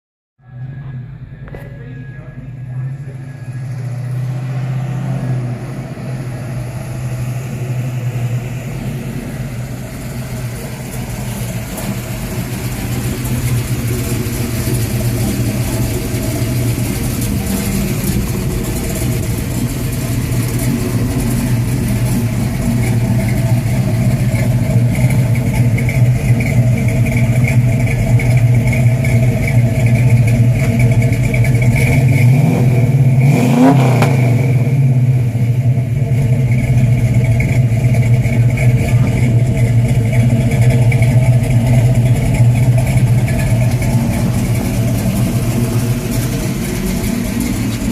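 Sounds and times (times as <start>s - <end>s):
car engine idling: 0.4s - 47.9s.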